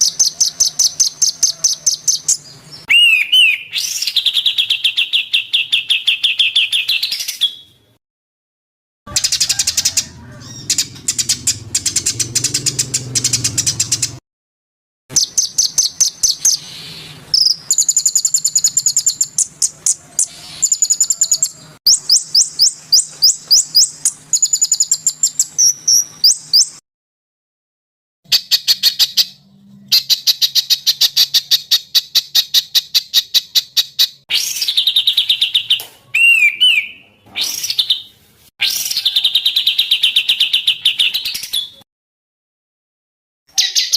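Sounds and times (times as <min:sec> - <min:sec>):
bird gliding whistles: 0:00.0 - 0:05.0, 0:20.2 - 0:26.8
songbird chirps and trills: 0:15.1 - 0:26.8.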